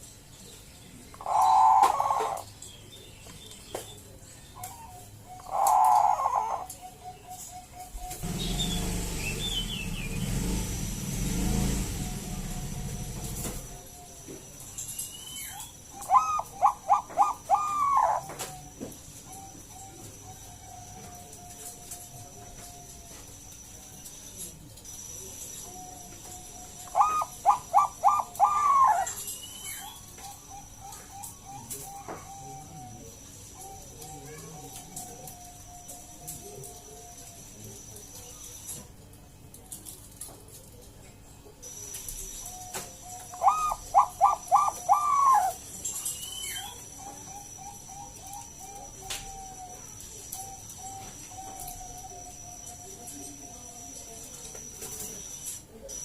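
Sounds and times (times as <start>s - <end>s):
small bird chirping: 0.0s - 10.8s, 11.9s - 38.9s, 41.4s - 56.0s
dove cooing: 1.2s - 2.5s, 4.6s - 9.5s, 15.9s - 23.2s, 25.7s - 37.2s, 42.2s - 45.7s, 46.5s - 53.7s.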